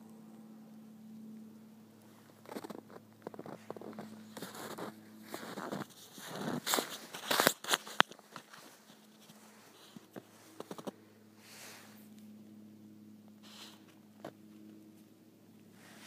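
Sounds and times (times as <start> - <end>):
faint steady hum: 0.0 - 16.0
rubbing on phone microphone: 2.4 - 11.0.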